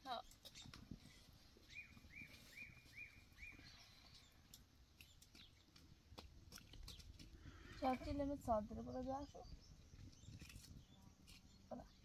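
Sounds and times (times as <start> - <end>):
bird chirping: 1.6 - 5.7, 6.8 - 12.0.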